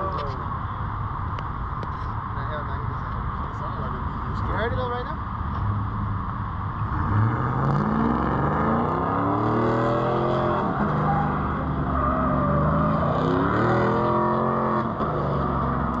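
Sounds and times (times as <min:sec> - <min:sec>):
distant car engine revving: 0:05.3 - 0:16.0.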